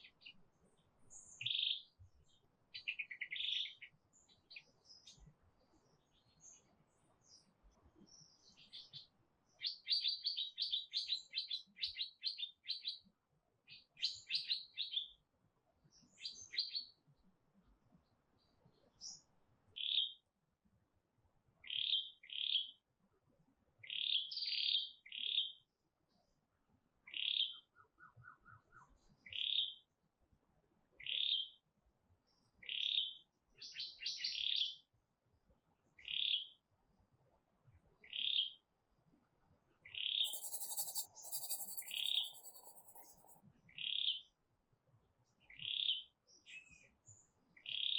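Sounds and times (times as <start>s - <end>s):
songbird singing: 40.3s - 43.3s.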